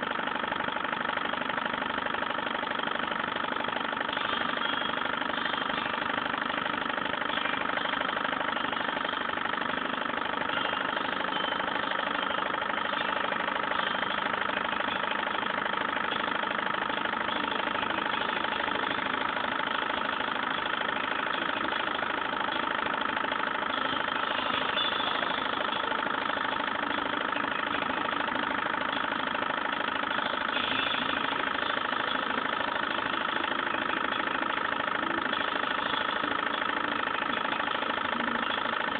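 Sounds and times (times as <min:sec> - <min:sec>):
engine mechanical hum: 0:00.0 - 0:38.9.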